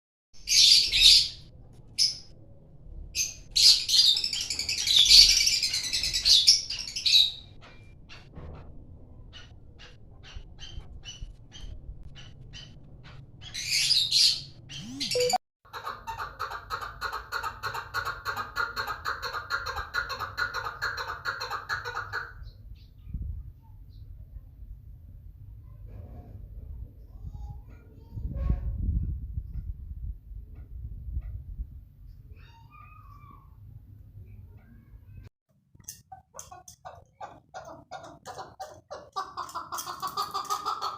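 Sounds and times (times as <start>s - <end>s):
lovebirds chirping and shrieking: 0.4s - 2.3s, 3.2s - 8.4s, 9.1s - 15.4s, 32.1s - 33.6s, 35.8s - 40.9s.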